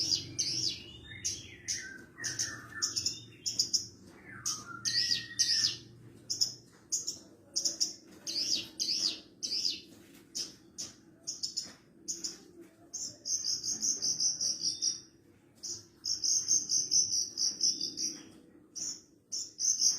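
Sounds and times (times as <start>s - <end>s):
bird singing chirps and whistles: 0.0s - 5.9s.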